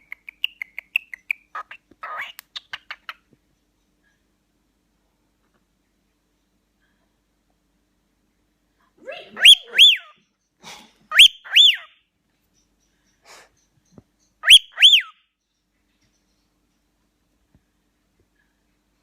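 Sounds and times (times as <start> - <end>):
soft bird chatter: 0.0 - 19.0
cockatiel whistling: 9.4 - 10.2, 11.1 - 11.9, 14.4 - 15.2.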